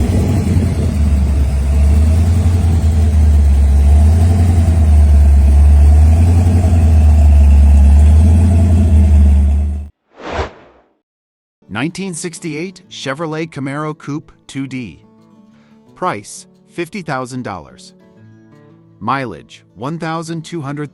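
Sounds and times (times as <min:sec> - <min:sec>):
car engine rumbling: 0:00.0 - 0:09.9.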